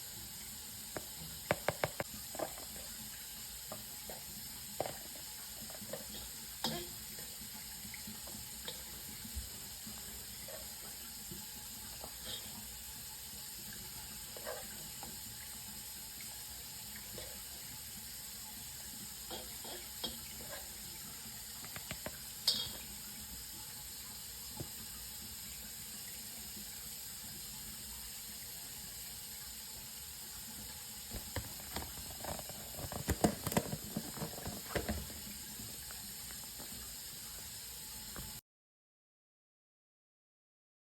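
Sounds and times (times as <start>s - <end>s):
tap running into a sink: 0.7s - 12.6s, 13.7s - 23.3s, 23.9s - 25.5s, 31.0s - 38.4s
dish clatter: 31.1s - 35.2s.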